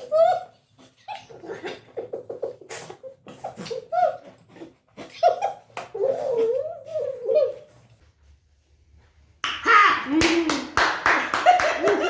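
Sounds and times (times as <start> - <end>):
woman laughing: 11.3 - 12.0.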